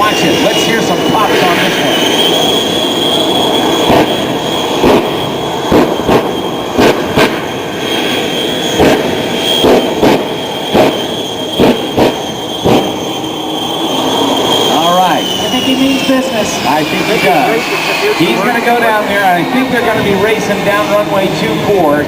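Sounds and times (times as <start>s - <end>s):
jet engines whining: 0.0s - 22.0s
loud afterburner pops: 3.8s - 4.2s, 4.8s - 7.5s, 8.8s - 13.0s.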